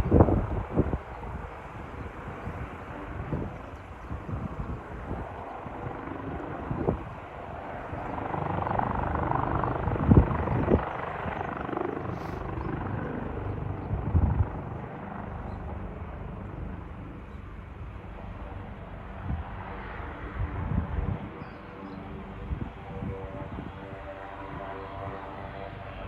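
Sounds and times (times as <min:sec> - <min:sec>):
helicopter rotor and turbines: 0:00.0 - 0:26.0.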